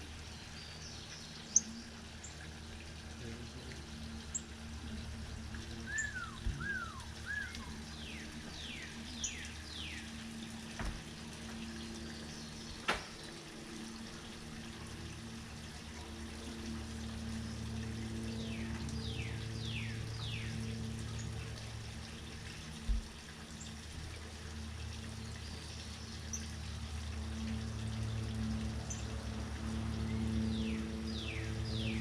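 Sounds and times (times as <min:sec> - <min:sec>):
small birds chirping: 0:00.0 - 0:02.4, 0:03.2 - 0:10.9
steady low hum: 0:00.0 - 0:32.0
downward whistled bird notes: 0:05.8 - 0:07.7.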